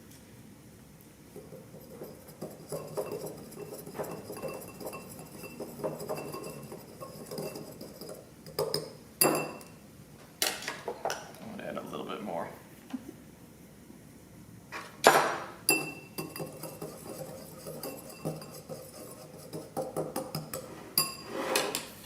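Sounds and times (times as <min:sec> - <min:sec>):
utensil stirring in a dish: 0:01.3 - 0:09.7, 0:15.7 - 0:21.8.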